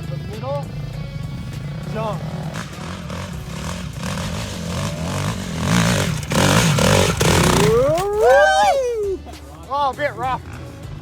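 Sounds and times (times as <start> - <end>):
dirt bike engine revving: 0.8 - 9.1
rattling clatter: 3.4 - 8.5.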